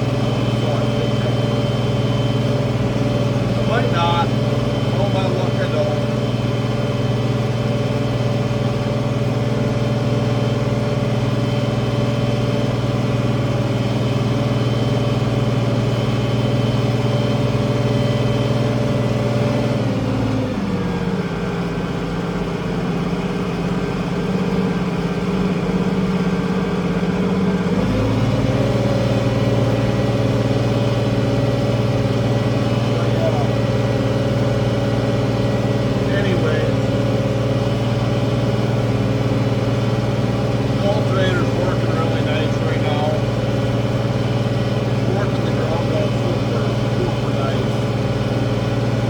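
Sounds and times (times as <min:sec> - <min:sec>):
tractor diesel engine running: 0:00.0 - 0:49.0.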